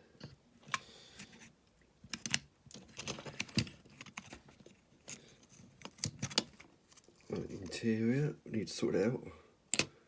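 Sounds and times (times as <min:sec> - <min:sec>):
small parts clicking and tapping: 0:02.0 - 0:07.1, 0:09.7 - 0:10.0.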